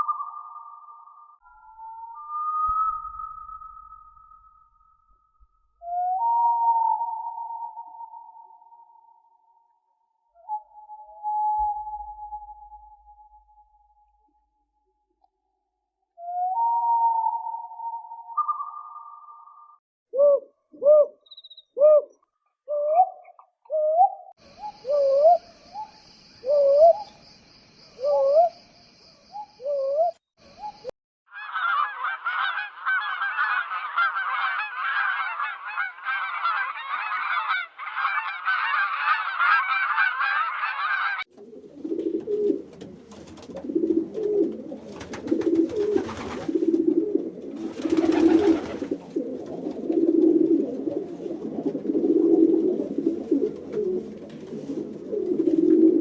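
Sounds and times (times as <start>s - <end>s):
pigeon cooing: 20.2s - 25.5s, 26.4s - 27.1s, 28.0s - 28.6s, 29.6s - 30.8s, 41.4s - 56.0s
chorus of many birds calling: 30.6s - 41.3s
goose honking: 31.4s - 41.2s.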